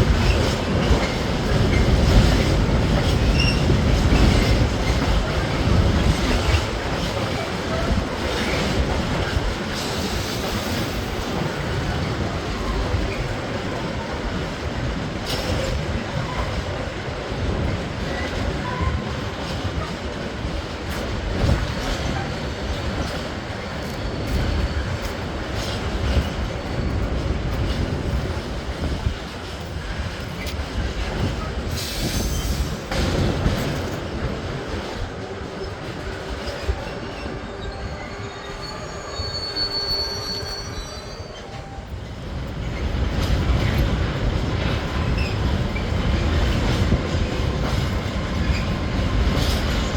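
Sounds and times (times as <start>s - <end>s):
train rumbling past: 0.0s - 49.9s
high wheel squeal: 31.8s - 32.8s, 36.4s - 41.8s.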